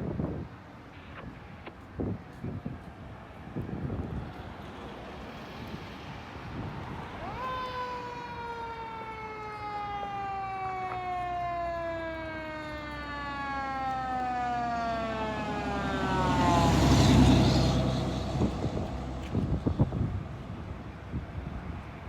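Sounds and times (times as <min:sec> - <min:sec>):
road noise: 0:00.0 - 0:22.0
truck engine passing: 0:03.8 - 0:21.0
fire truck siren wailing: 0:05.2 - 0:20.1.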